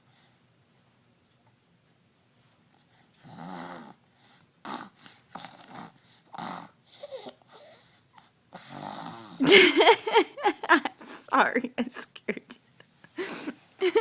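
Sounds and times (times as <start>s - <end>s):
baby grunting and cooing: 4.6s - 7.7s.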